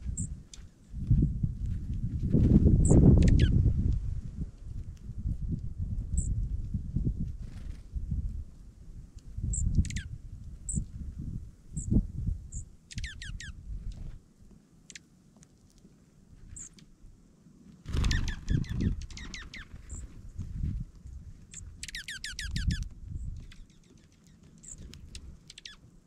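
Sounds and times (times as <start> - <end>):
downward-sliding bird twitter: 21.5 - 22.8.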